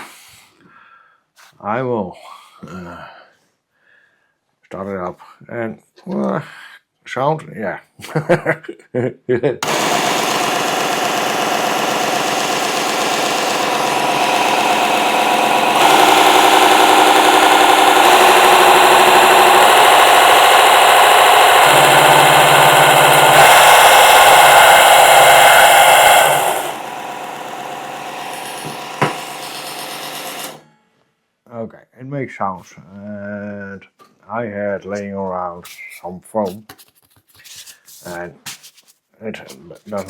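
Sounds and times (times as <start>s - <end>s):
belt sander motor whine: 9.6s - 30.6s.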